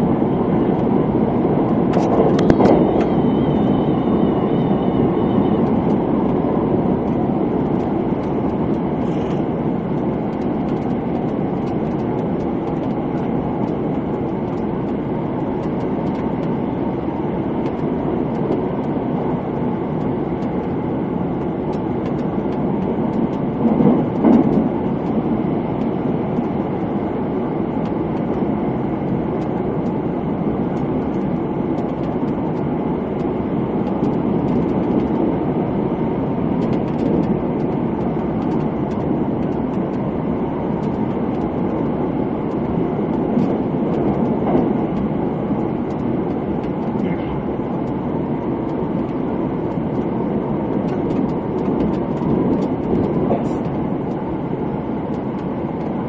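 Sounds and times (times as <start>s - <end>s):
train running rumble: 0.0s - 56.0s
faint high whine: 2.3s - 6.0s.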